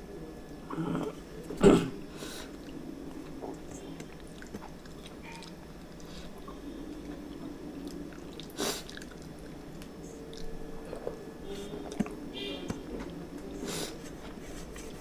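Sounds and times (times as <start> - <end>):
person chewing food: 2.5 - 13.2.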